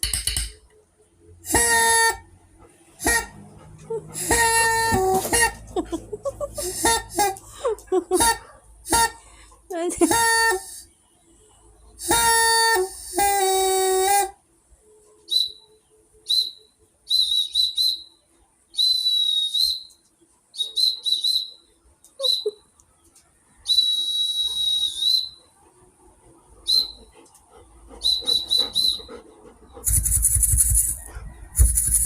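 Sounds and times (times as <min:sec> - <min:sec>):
whistle blasts: 0:01.5 - 0:02.2, 0:03.0 - 0:03.4, 0:04.2 - 0:05.6, 0:12.0 - 0:14.3, 0:15.3 - 0:22.6, 0:23.6 - 0:25.4, 0:26.7 - 0:27.0, 0:28.0 - 0:29.2.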